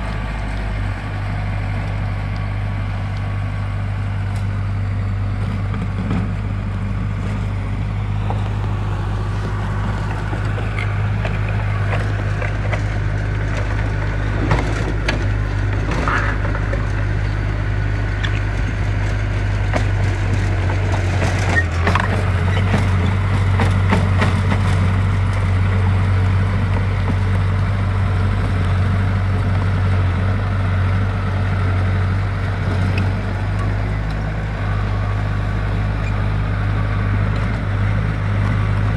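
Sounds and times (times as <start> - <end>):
heavy machine engine running: 0.0 - 38.9
knocks and scraping: 7.1 - 17.5, 18.2 - 27.4.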